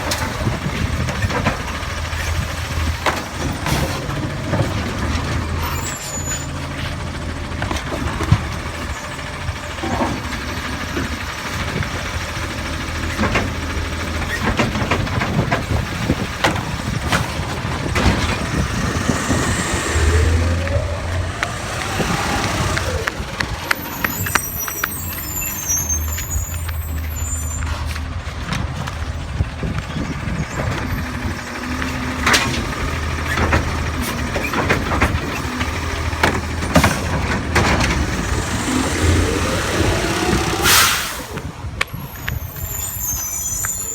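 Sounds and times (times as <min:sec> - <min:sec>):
garbage truck engine humming: 0:00.0 - 0:43.9
air brake hisses: 0:38.0 - 0:41.6.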